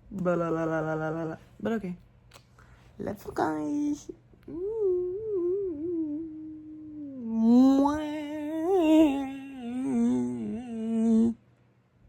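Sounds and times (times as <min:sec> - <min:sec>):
woman humming: 0:00.0 - 0:01.4, 0:03.4 - 0:11.4.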